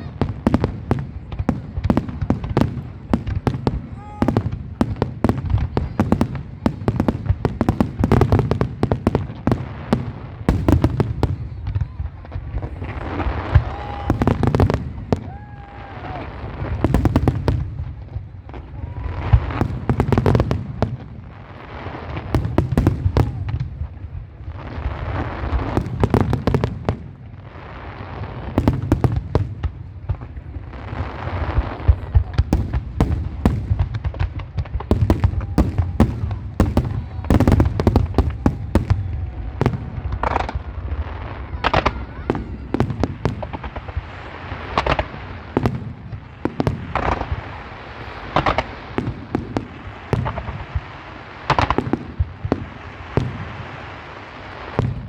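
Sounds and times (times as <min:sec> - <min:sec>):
fireworks bangs and booms: 0:00.0 - 0:55.0
fireworks crackling: 0:00.0 - 0:55.0.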